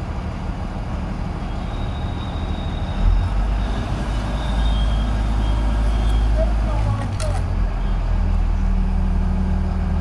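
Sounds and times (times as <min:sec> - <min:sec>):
diesel engine rumbling: 0:00.0 - 0:10.0.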